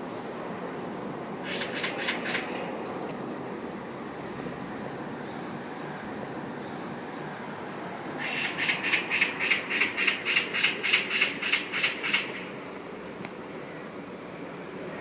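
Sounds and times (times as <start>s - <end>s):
magpie chattering rattle: 1.5s - 2.5s, 8.2s - 12.5s.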